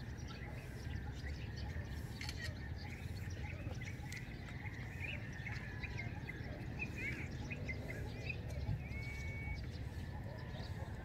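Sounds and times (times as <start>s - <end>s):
small birds chirping: 0.0s - 11.0s
bird whistle: 8.8s - 10.0s.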